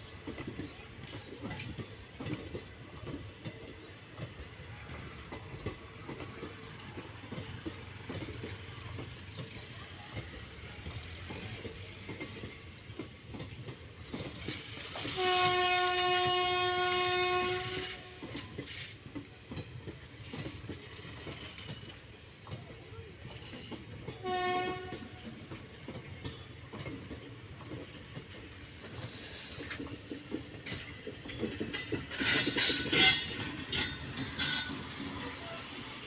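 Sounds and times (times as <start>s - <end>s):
train wheels clattering on rails: 0.0s - 36.0s
train horn blast: 15.1s - 18.2s, 24.2s - 25.2s.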